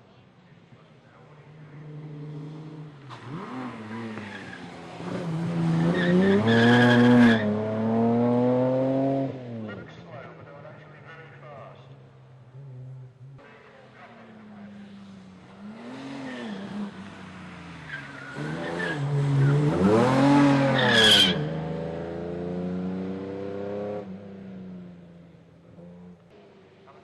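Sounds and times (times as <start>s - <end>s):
racing car engine revving: 1.4s - 11.4s, 12.5s - 25.0s
tyre squeal: 5.7s - 7.5s, 17.8s - 21.6s.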